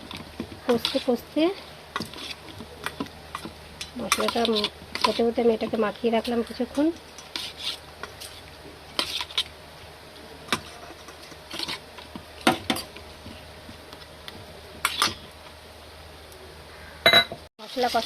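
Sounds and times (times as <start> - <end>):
spatula scraping a pan: 0.7 - 9.5, 10.5 - 11.9.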